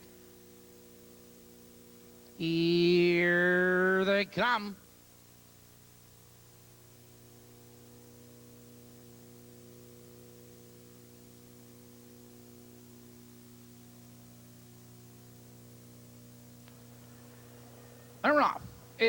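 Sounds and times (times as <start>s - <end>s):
mains hum with hiss: 0.0s - 19.0s.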